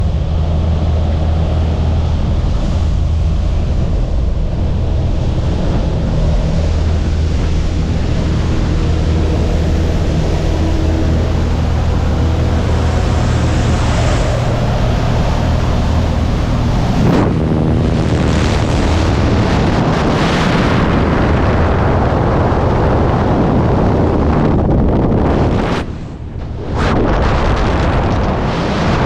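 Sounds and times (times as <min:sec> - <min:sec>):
airplane engine running: 0:00.0 - 0:29.0
wind buffeting microphone: 0:00.0 - 0:29.0
slipstream rushing: 0:00.3 - 0:21.8.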